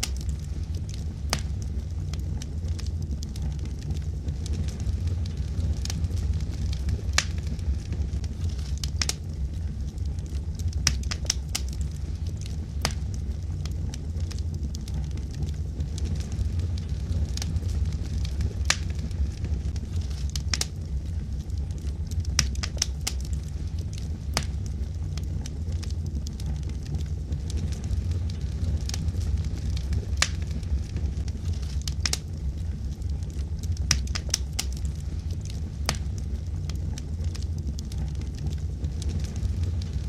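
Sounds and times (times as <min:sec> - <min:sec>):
fire rumbling: 0:00.0 - 0:40.0
wood crackling and popping: 0:00.0 - 0:40.0.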